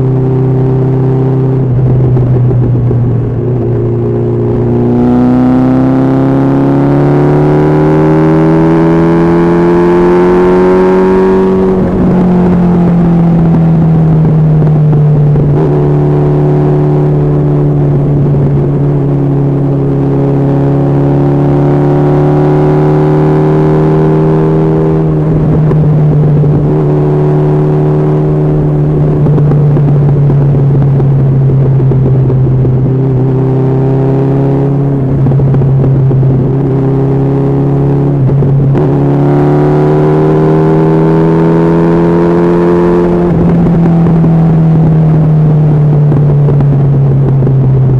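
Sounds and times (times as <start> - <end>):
motorcycle engine at speed: 0.0 - 47.9.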